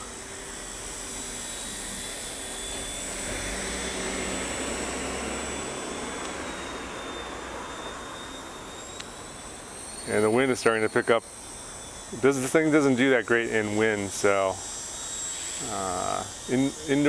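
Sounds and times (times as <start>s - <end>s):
toy helicopter rotor whirring: 0.0s - 17.0s.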